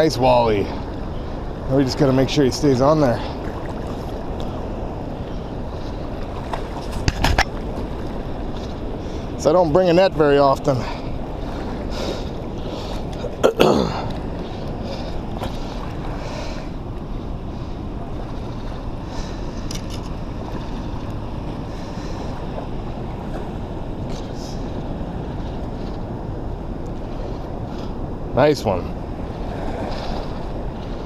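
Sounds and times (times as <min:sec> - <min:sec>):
moving water: 0:00.0 - 0:31.0
wind buffeting microphone: 0:00.0 - 0:31.0.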